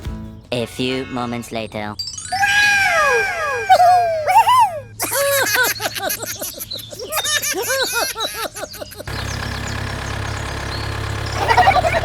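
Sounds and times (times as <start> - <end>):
high squeaky chirps: 2.0 - 9.9
vehicle engine running: 9.0 - 12.0.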